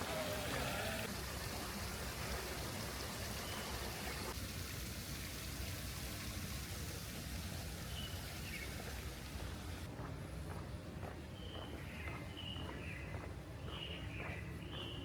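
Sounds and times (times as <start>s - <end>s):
steady rain falling: 0.0s - 9.9s.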